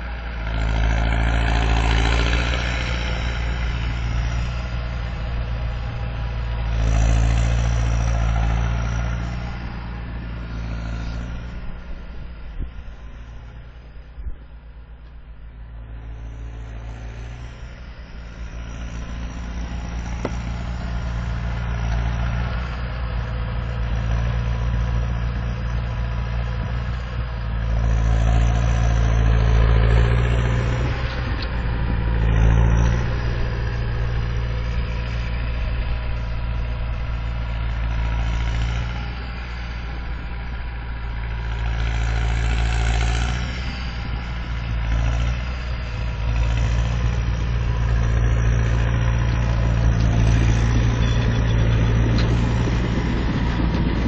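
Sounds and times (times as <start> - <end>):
tractor diesel engine working hard: 0.0 - 54.0
turbocharger whistle: 45.8 - 53.8.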